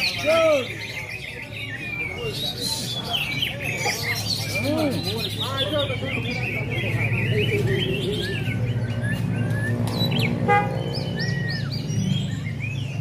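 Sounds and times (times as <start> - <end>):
caged songbirds singing: 0.0 - 13.0.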